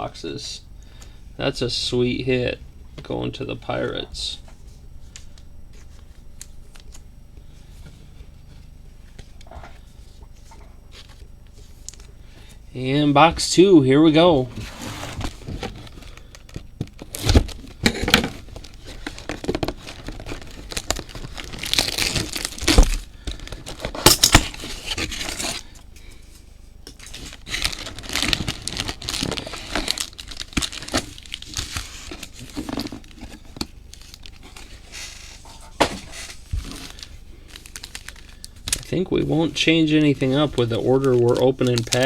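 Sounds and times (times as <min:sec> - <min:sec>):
wrapping and cardboard crinkling: 0:14.1 - 0:42.0.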